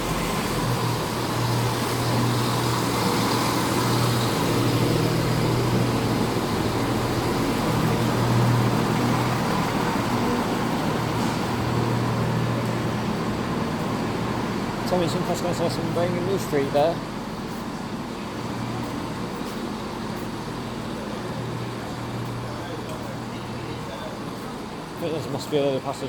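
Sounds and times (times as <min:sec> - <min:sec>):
diesel train engines droning: 0:00.0 - 0:26.0.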